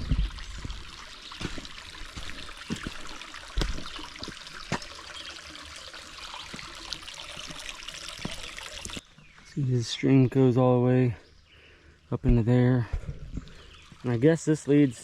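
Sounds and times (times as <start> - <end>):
stream trickling over rocks: 0.0 - 9.8, 13.2 - 15.0.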